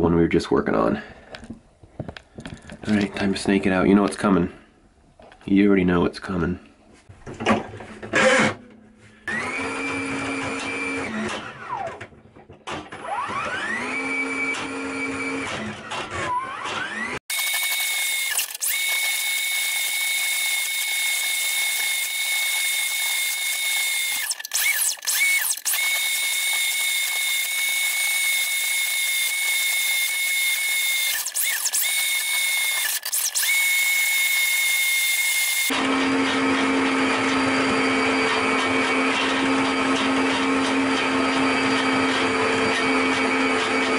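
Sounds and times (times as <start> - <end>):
drain snake motor whining: 17.3 - 35.7.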